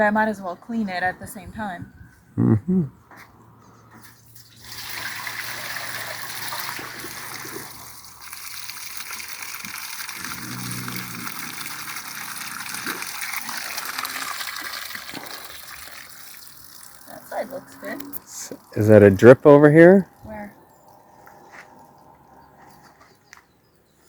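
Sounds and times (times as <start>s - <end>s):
water running into a sink: 4.5s - 17.3s.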